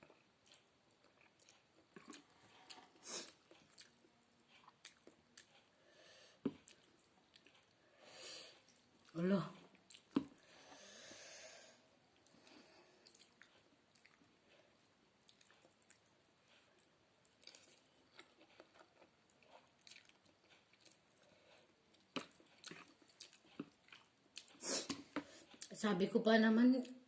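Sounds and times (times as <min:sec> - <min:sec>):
person chewing: 0:00.0 - 0:07.8, 0:08.5 - 0:10.9, 0:12.2 - 0:25.7.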